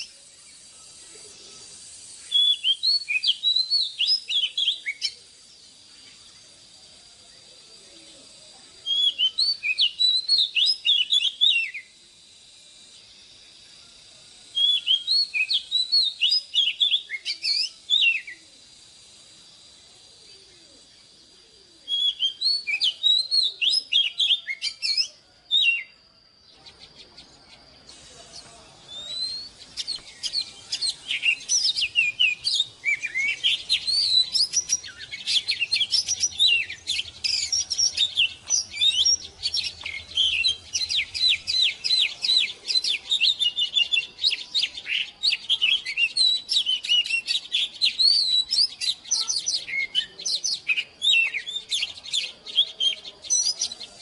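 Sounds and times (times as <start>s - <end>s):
bird singing high whistles and chirps: 0.0s - 54.0s.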